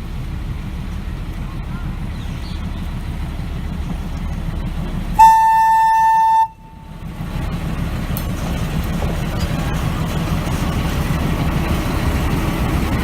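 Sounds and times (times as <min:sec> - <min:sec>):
train running rumble: 0:00.0 - 0:13.0
locomotive air horn blast: 0:05.2 - 0:07.0.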